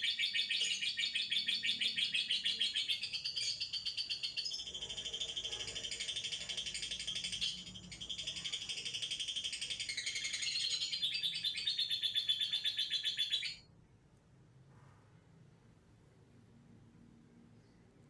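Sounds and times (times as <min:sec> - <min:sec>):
bird singing fast stuttering notes: 0:00.0 - 0:13.6.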